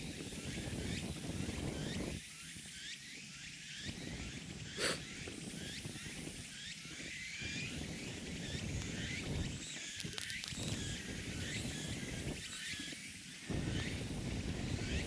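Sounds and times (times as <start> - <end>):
small birds chirping: 7.7 - 14.0.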